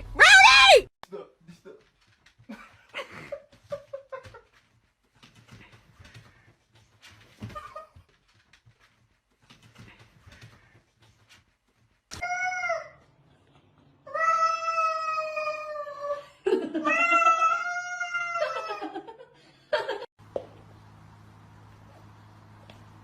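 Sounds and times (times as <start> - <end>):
cat yowling: 14.1 - 16.0, 16.8 - 18.9.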